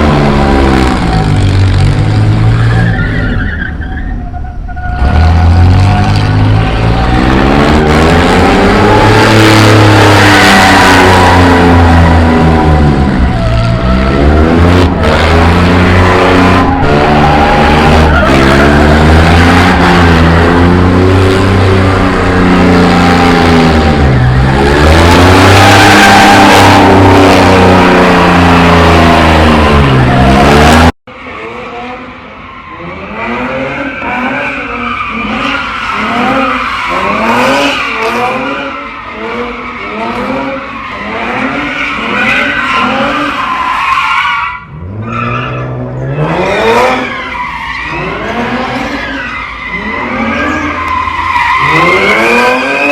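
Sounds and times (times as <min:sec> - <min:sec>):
car engines at high revs: 0:00.0 - 0:02.9, 0:05.0 - 0:52.9
engine accelerating: 0:05.0 - 0:32.0, 0:49.8 - 0:52.9.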